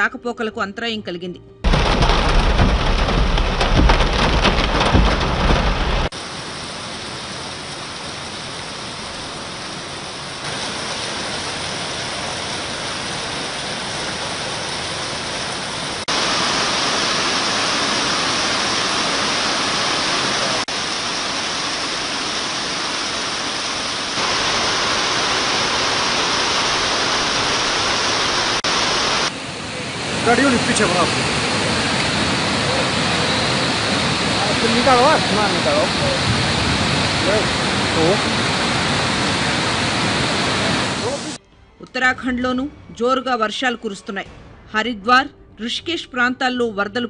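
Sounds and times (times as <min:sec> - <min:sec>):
deep crackling rumble: 0:01.6 - 0:06.1
heavy rain hissing: 0:01.7 - 0:41.4.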